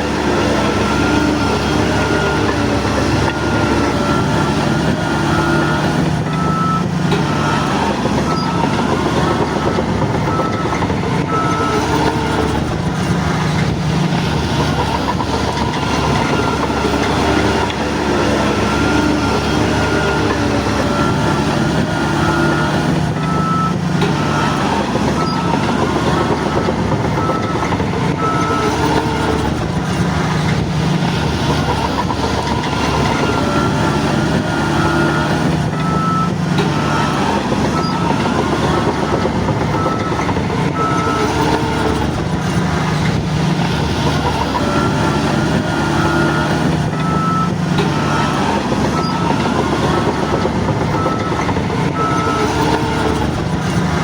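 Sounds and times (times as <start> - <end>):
bulldozer diesel engine running: 0.0 - 54.0
reversing alarm beeping: 0.0 - 54.0.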